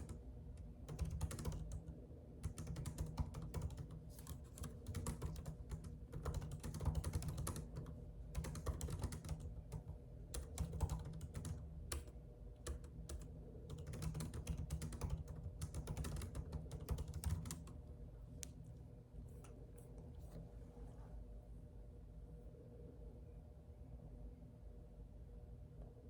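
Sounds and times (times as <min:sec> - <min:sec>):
computer keyboard typing: 0:00.0 - 0:17.8
low steady hum: 0:00.0 - 0:26.0.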